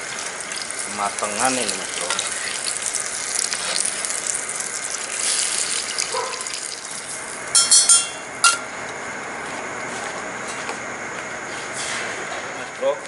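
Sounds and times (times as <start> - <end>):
oil sizzling in a frying pan: 0.0 - 8.3
sharp ringing clink: 7.6 - 8.6.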